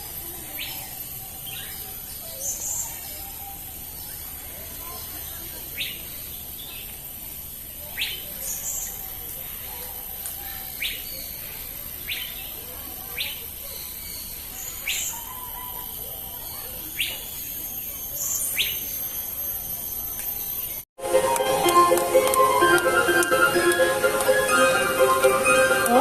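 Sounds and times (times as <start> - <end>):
faint high chirps: 9.7 - 20.8.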